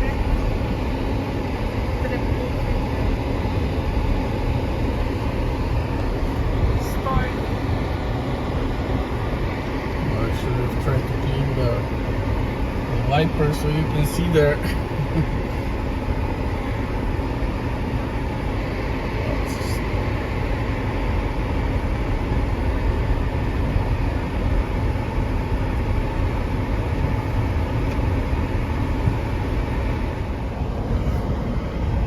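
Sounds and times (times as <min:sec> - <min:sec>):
car road and engine rumble: 0:00.0 - 0:32.0.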